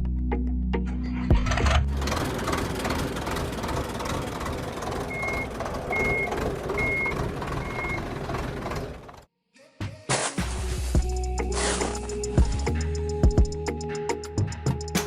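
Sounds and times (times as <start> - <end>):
heavy vehicle rumbling: 0.9 - 9.3
reversing alarm beeping: 5.1 - 8.1.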